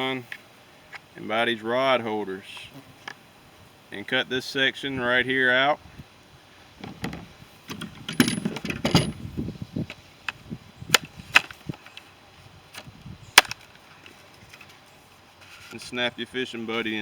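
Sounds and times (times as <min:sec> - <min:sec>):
hard plastic parts clicking and knocking: 0:06.8 - 0:09.2
plastic scraping and rattling: 0:06.8 - 0:09.2.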